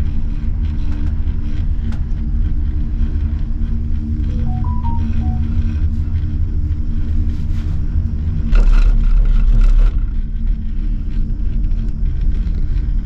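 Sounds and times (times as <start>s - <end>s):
faint hum: 4.2s - 6.2s.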